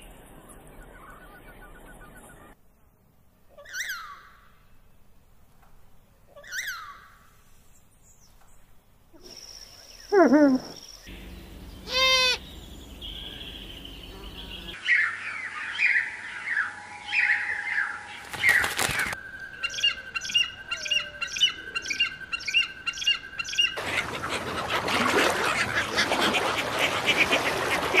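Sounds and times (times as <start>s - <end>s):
bird squawk: 3.5s - 4.5s, 6.3s - 7.2s, 11.8s - 28.0s
descending bird calls: 3.5s - 4.8s, 6.3s - 7.4s, 8.1s - 26.8s
overlapping bird calls: 9.2s - 28.0s.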